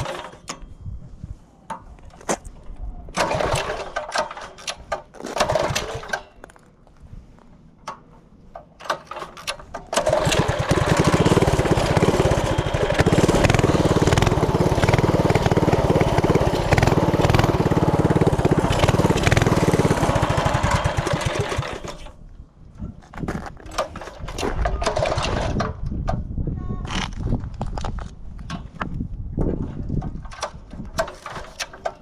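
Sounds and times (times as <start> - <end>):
mini bike engine running: 10.0 - 22.1.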